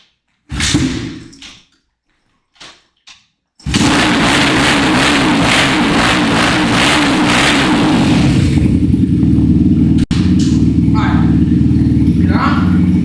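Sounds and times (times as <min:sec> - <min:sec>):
dirt bike engine running: 0:03.7 - 0:13.0.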